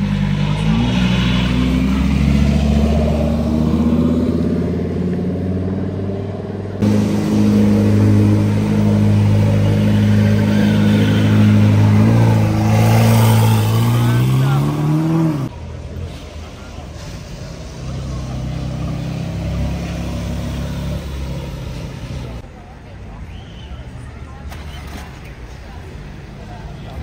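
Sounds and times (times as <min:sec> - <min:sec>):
sports car engine pulling away: 0:00.0 - 0:15.5
supercar engine revving: 0:00.0 - 0:15.5.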